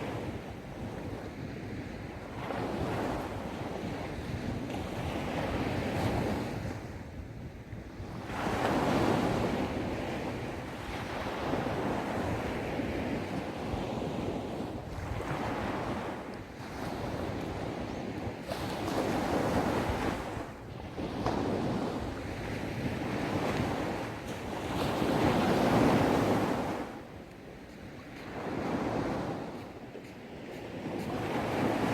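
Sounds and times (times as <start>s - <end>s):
wind rumbling on microphone: 0.0s - 31.9s
sea waves washing on sand: 8.1s - 31.9s.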